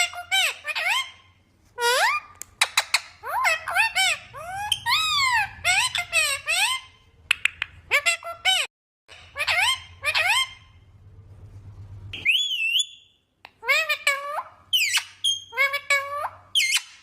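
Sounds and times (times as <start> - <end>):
parrot calling and chattering: 0.0 - 10.8, 12.2 - 17.0
sharp clicks: 7.3 - 7.8.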